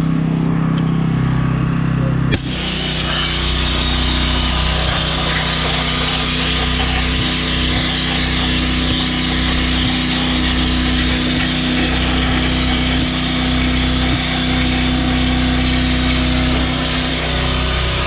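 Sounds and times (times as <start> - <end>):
pressure washer sandblasting: 2.3 - 18.0.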